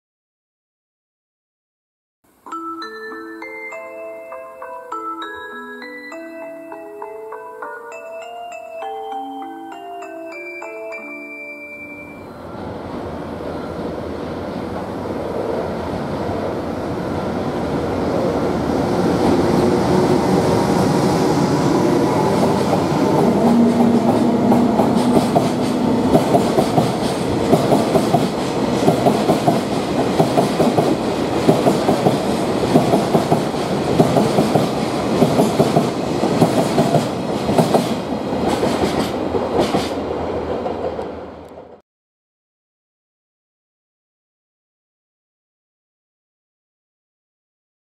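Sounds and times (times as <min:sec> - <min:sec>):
freight train passing: 0:04.6 - 0:41.8
wheels clickety-clack over rail joints: 0:22.4 - 0:41.8.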